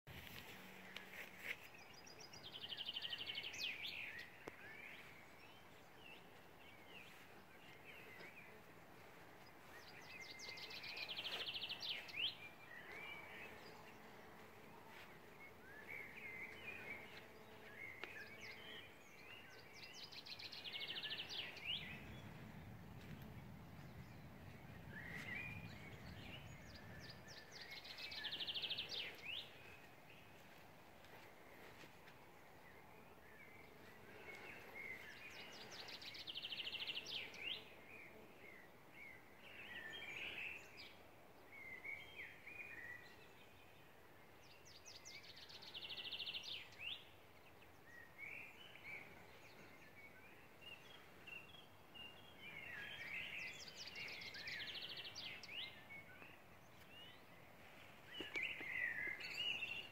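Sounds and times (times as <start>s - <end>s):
songbird trill: 0.2s - 59.9s
quieter bird chirps: 1.5s - 30.5s
faint low rumble: 4.5s - 36.2s.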